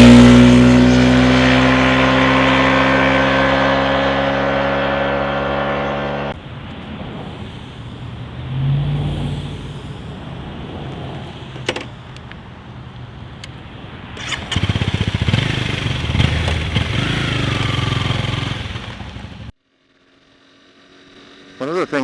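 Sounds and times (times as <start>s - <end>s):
motorcycle engine accelerating: 0.0s - 22.0s
wind noise: 6.4s - 19.5s.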